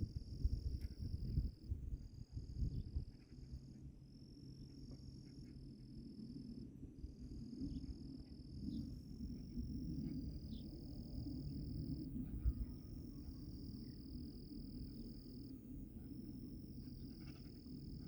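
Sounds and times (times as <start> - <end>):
low rumbling outdoor noise: 0.0 - 18.0
insects trilling: 16.6 - 18.0.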